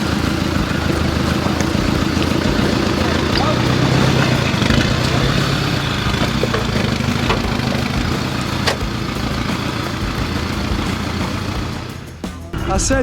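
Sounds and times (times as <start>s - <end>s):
engine running at low revs: 0.0s - 13.0s.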